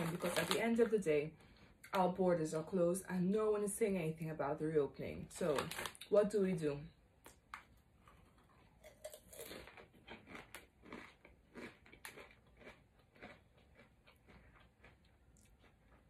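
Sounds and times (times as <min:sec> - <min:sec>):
person chewing crunchy snack: 0:07.3 - 0:16.0.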